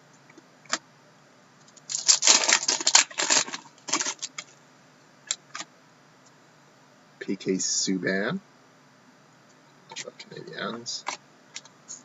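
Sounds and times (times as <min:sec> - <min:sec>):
packaging crinkling: 0:01.8 - 0:04.5.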